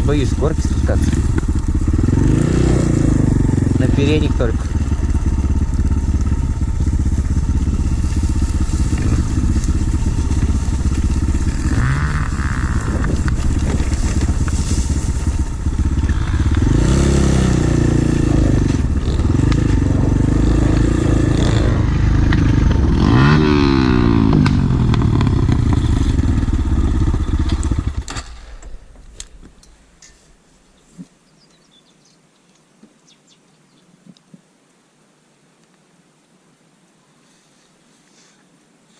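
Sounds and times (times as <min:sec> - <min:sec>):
pit bike engine revving: 0:00.0 - 0:28.7
wind noise on microphone: 0:08.7 - 0:25.0.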